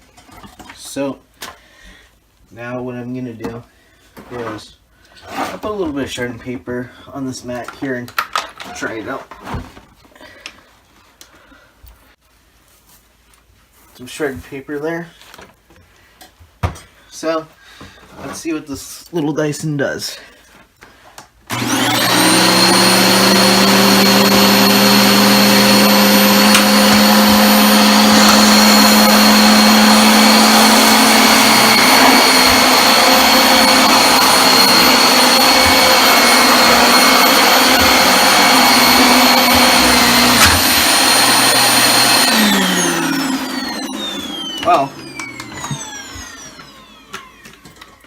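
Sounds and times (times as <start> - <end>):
vacuum cleaner motor whine: 21.5 - 48.0.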